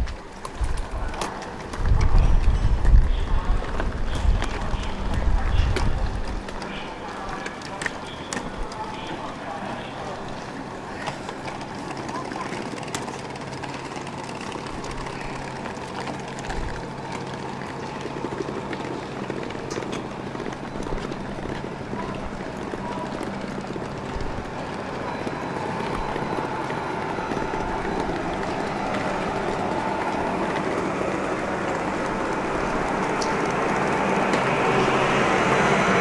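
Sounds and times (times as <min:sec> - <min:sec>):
passenger train rumbling: 0:00.0 - 0:36.0
thin steady whine: 0:02.8 - 0:36.0.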